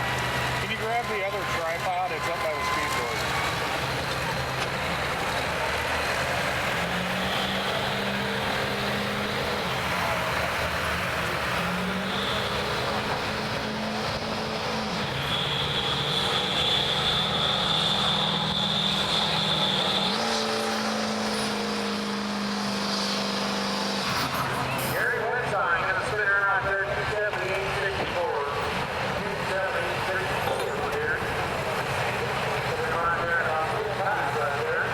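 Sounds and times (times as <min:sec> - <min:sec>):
pickup truck engine under load: 0:02.6 - 0:17.1
high steady whistle: 0:15.2 - 0:20.2.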